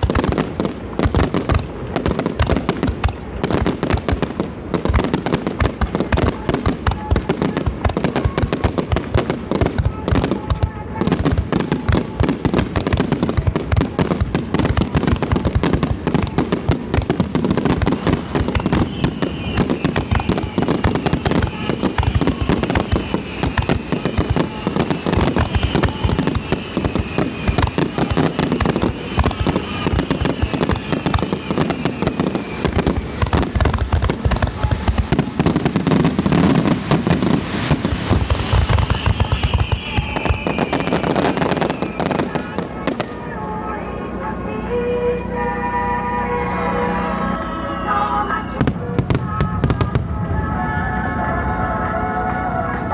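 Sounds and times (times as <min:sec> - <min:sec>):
fireworks bursting and crackling: 0:00.0 - 0:52.9
falling whistle tones: 0:18.6 - 0:33.2, 0:38.7 - 0:42.6.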